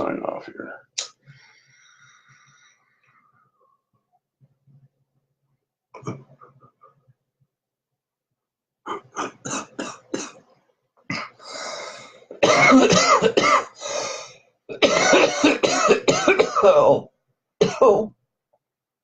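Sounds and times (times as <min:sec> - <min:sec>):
man coughing: 0:08.9 - 0:10.4, 0:12.4 - 0:13.8, 0:14.7 - 0:17.0, 0:17.6 - 0:18.1
breathy exhale: 0:11.4 - 0:12.3.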